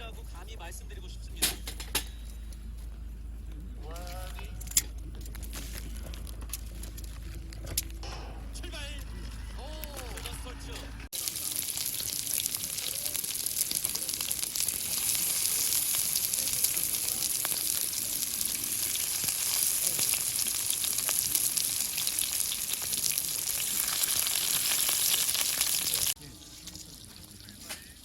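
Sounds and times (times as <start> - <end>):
food sizzling in a hot pan: 11.1 - 28.0.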